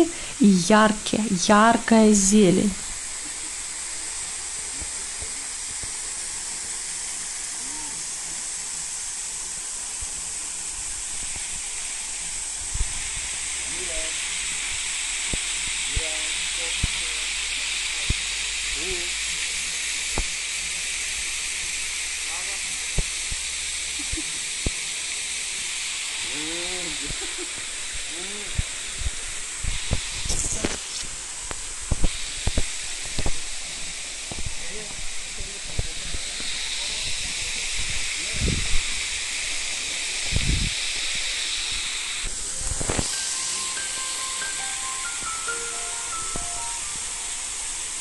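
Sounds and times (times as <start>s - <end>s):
person speaking: 0.0s - 2.8s
waterfall hiss: 0.0s - 48.0s.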